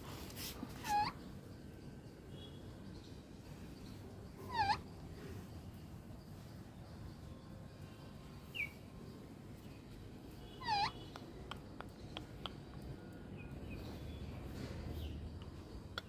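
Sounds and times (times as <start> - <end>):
parrot calling: 0.8 - 1.2, 4.4 - 4.9, 10.6 - 11.2.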